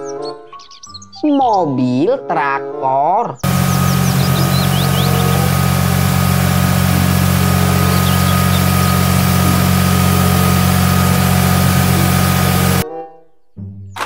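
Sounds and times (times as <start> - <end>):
lorry diesel engine running: 3.4 - 12.8
faint bird chirps: 3.9 - 5.4.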